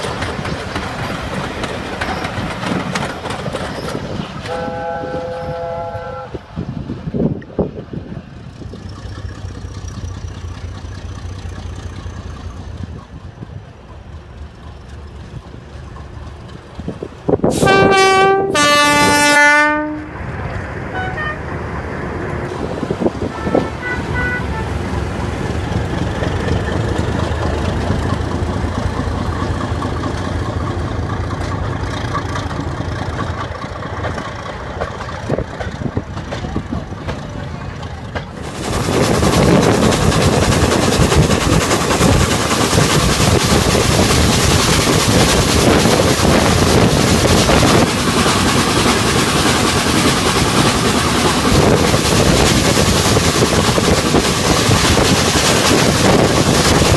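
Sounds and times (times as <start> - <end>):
steam locomotive whistle: 4.4 - 6.5, 17.5 - 20.2, 20.9 - 21.4.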